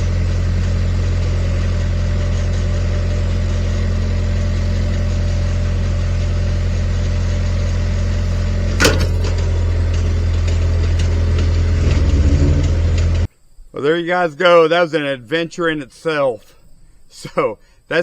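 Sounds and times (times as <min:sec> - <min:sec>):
engine idling: 0:00.0 - 0:13.3
sharp knock: 0:08.8 - 0:09.4.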